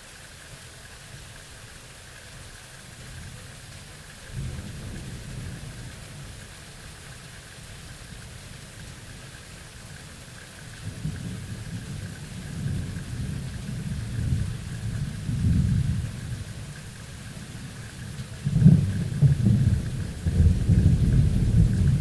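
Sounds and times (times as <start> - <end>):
steady rain hiss: 0.0 - 22.0
low thunder rumbling: 10.8 - 16.7, 17.4 - 22.0.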